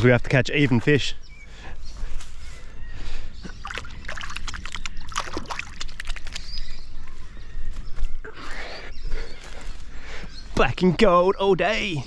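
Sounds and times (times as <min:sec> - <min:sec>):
water splashing and sloshing: 0:03.5 - 0:06.6.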